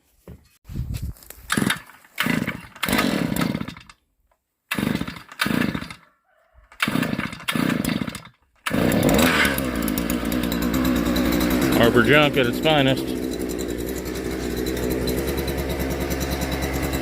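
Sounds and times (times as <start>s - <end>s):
power tool motor running: 6.9s - 17.0s.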